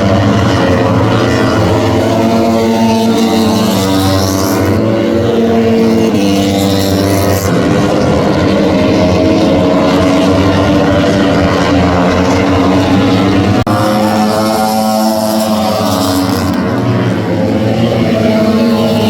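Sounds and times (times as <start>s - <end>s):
racing motorcycle engines: 0.0s - 19.0s.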